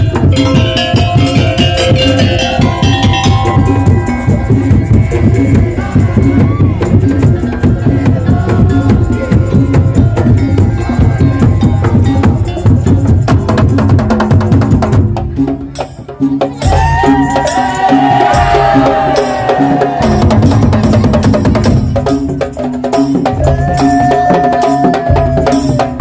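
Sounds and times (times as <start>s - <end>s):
melodic line: 0.0s - 4.7s
drums and slit drums beating: 0.0s - 26.0s.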